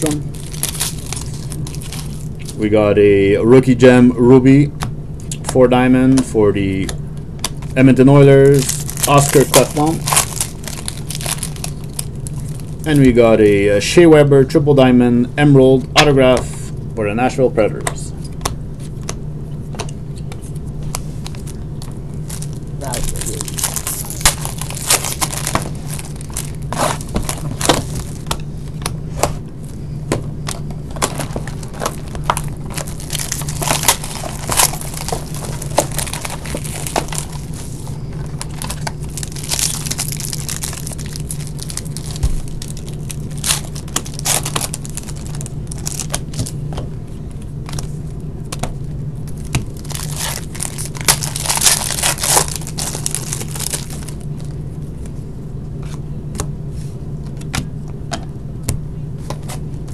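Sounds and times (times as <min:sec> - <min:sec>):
card pack wrappers crinkling: 0:00.0 - 0:02.6, 0:06.7 - 0:13.2, 0:21.2 - 0:28.9, 0:30.4 - 0:46.6, 0:49.3 - 0:54.6
low hum: 0:00.0 - 0:59.9.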